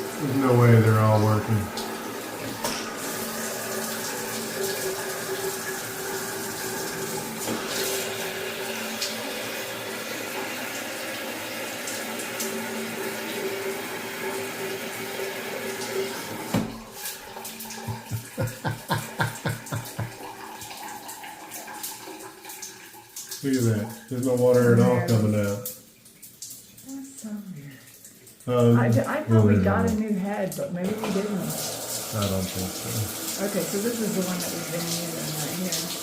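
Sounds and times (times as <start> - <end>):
shower water hissing: 0.0 - 22.4, 23.3 - 25.6, 26.8 - 36.0.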